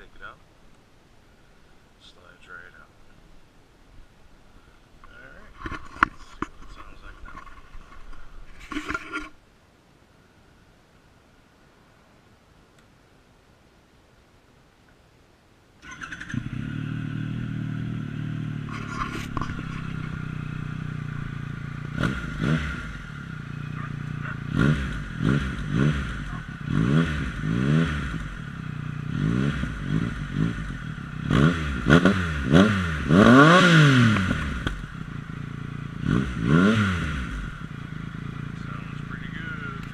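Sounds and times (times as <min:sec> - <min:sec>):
motorcycle engine idling: 0:15.8 - 0:33.1, 0:34.0 - 0:39.9
motorcycle engine revving: 0:15.8 - 0:39.9.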